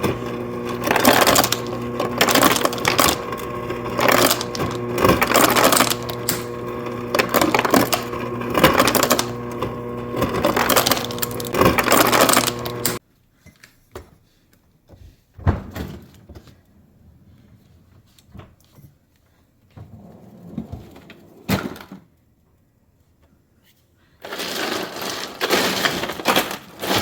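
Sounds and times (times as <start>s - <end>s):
ice crushing clatter: 0.0s - 13.0s, 24.2s - 27.0s
ice dispenser motor humming: 0.0s - 13.0s, 24.2s - 27.0s.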